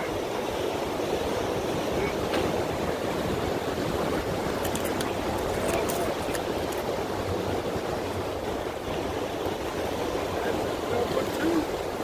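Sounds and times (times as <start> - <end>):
wind: 0.0 - 12.0
water washing against rocks: 0.1 - 12.0.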